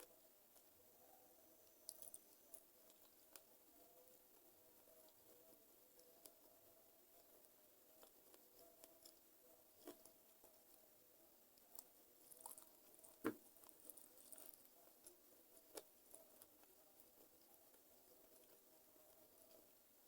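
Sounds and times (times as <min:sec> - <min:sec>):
close chewing with wet crunches: 0:11.6 - 0:15.2.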